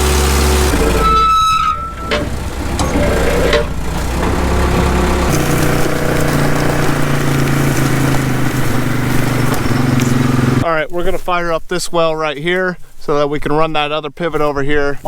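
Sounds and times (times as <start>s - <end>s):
engine running: 0.0s - 10.6s.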